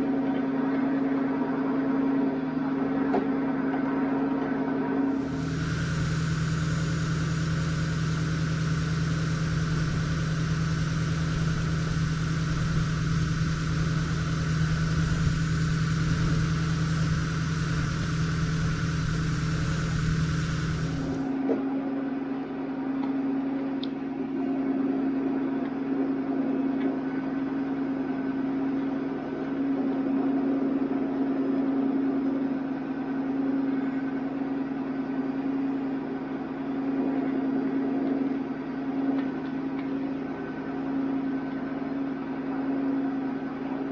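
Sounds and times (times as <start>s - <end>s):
mechanical hum: 0.0s - 43.9s
truck engine idling: 5.2s - 21.3s.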